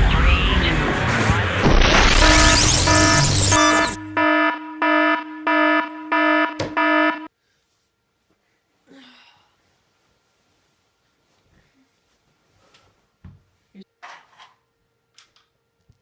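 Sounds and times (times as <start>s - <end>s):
loud musical intro: 0.0s - 7.3s
electronic alarm beeping: 1.6s - 7.3s.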